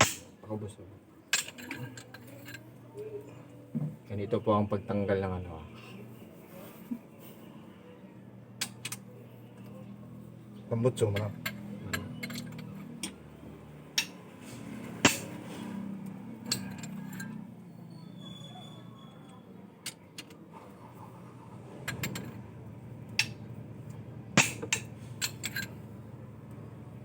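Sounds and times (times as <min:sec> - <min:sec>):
metal clinks and knocks: 0:01.3 - 0:02.7, 0:11.1 - 0:13.2, 0:16.1 - 0:17.4, 0:21.8 - 0:22.4, 0:24.4 - 0:25.9.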